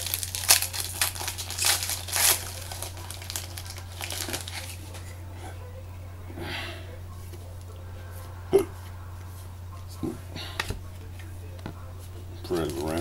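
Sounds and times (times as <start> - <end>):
cards rustling: 0.0 - 5.2, 10.5 - 13.0
foil wrapper crinkling: 0.0 - 5.2, 12.4 - 13.0.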